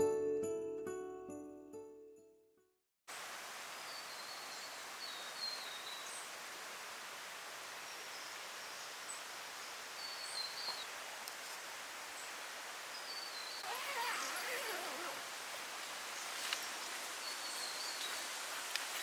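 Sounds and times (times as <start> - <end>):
steady hiss: 3.1 - 19.0
small bird chirping: 12.9 - 18.3.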